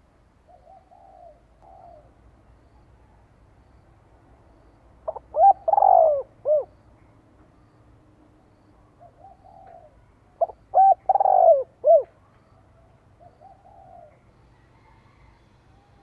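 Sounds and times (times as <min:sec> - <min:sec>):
dove cooing: 0:00.5 - 0:02.2, 0:05.0 - 0:06.7, 0:08.9 - 0:14.2.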